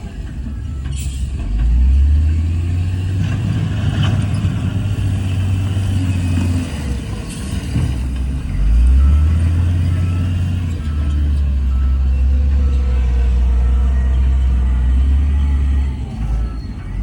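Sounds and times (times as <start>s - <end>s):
diesel engine rumbling under load: 0.0s - 17.0s.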